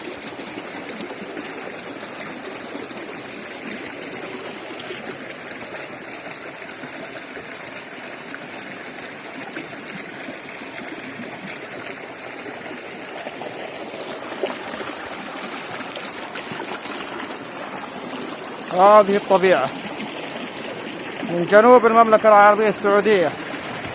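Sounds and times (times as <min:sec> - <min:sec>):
stream water rushing: 0:00.0 - 0:23.9.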